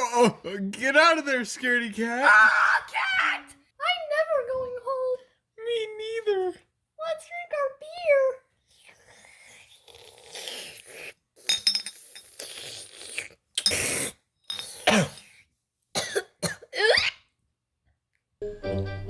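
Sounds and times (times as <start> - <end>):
person coughing and hacking: 14.6 - 15.4, 16.0 - 17.2.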